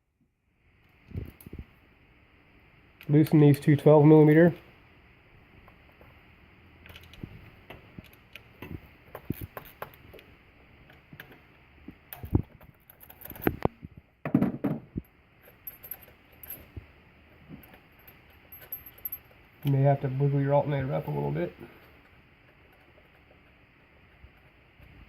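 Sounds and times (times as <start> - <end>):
metal tools clinking: 15.4 - 16.7, 17.6 - 19.8.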